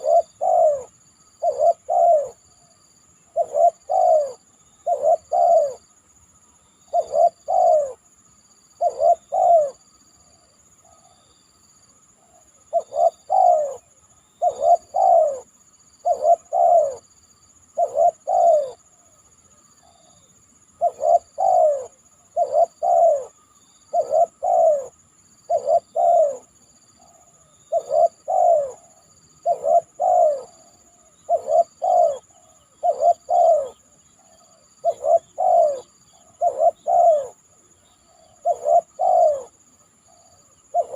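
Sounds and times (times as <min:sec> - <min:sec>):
dove cooing: 0:00.0 - 0:06.0, 0:06.8 - 0:08.0, 0:08.8 - 0:09.8, 0:12.2 - 0:19.2, 0:19.8 - 0:40.9.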